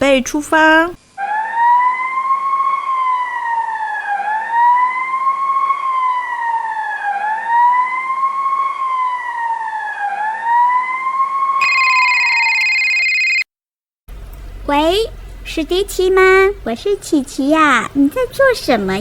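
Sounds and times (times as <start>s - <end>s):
emergency siren wailing: 1.2s - 13.4s
telephone ringing: 11.6s - 13.4s.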